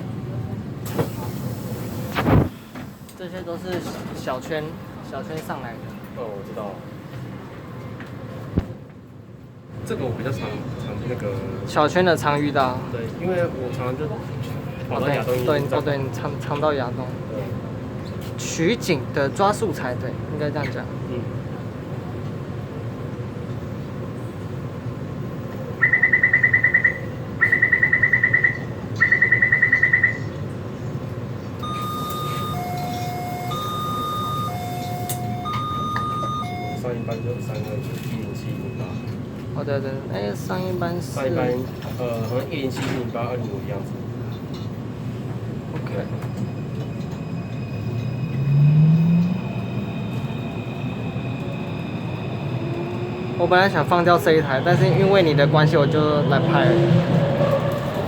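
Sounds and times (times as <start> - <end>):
train rumble: 0.0 - 58.0
electronic warning beeper: 25.8 - 30.4, 31.6 - 39.1
two-tone electronic chime: 31.6 - 37.6.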